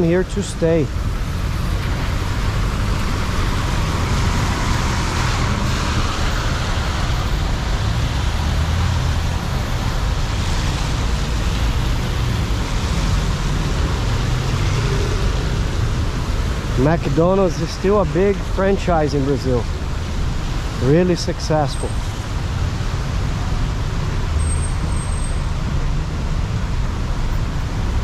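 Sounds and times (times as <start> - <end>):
rain on street: 0.0 - 28.0
tyres hissing on wet street: 0.0 - 28.0
vehicle engines rumbling: 0.0 - 28.0.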